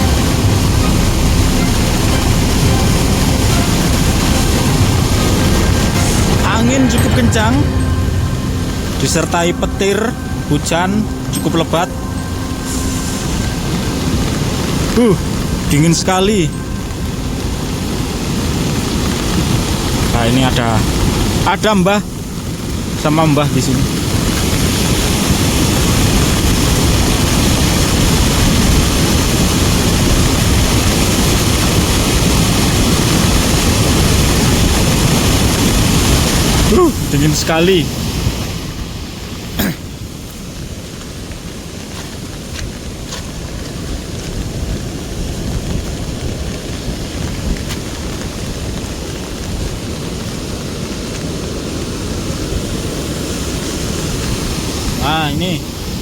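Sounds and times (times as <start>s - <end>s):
wind gusting on microphone: 0.0s - 55.0s
heavy rain: 0.0s - 56.0s
wind buffeting microphone: 37.8s - 55.0s.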